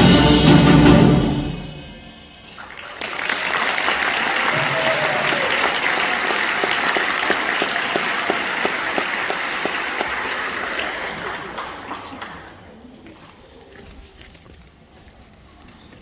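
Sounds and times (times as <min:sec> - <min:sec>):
audience applauding: 0:02.5 - 0:12.9.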